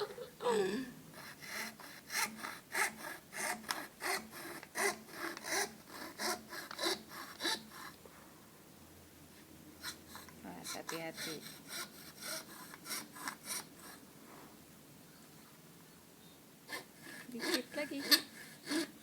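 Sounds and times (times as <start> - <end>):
hand saw cutting plywood: 1.2 - 8.0, 9.8 - 14.0, 16.7 - 19.0.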